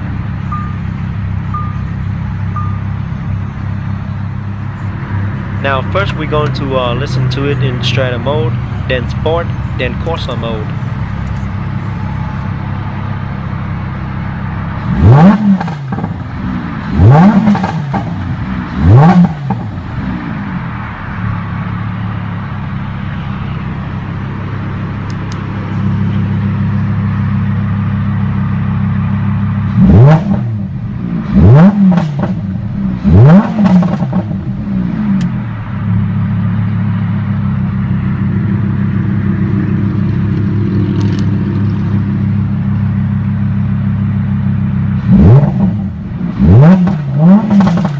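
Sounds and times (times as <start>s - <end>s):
car engine idling and revving: 0.0s - 47.9s.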